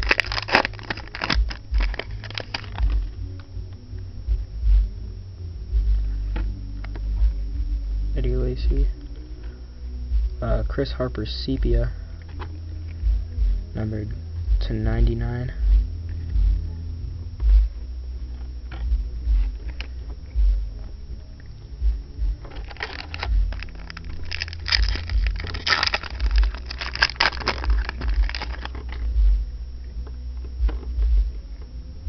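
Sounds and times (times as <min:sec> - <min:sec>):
cards and foil pack crackling: 0:00.0 - 0:03.2, 0:22.4 - 0:29.1
low thumps: 0:00.0 - 0:10.8, 0:11.6 - 0:32.0.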